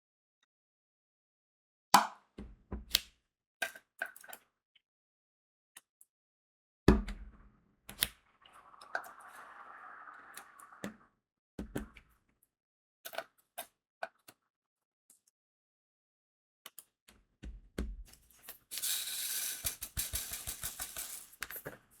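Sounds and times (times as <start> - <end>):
beads and tools knocking: 18.6 - 21.8.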